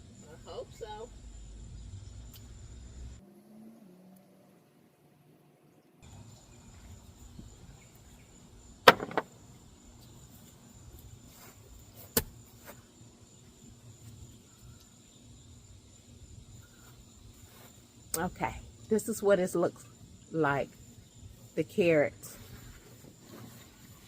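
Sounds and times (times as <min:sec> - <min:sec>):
high insect drone: 0:00.0 - 0:03.2, 0:06.0 - 0:24.0
sharp knocks: 0:08.8 - 0:09.3.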